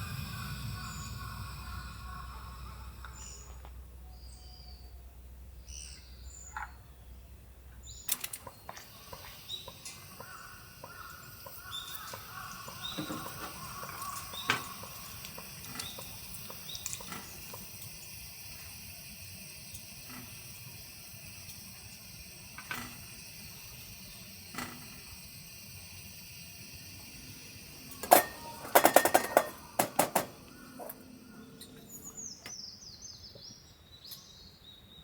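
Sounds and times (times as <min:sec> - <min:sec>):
low rumble: 0:00.0 - 0:06.2
small birds chirping: 0:00.0 - 0:35.0.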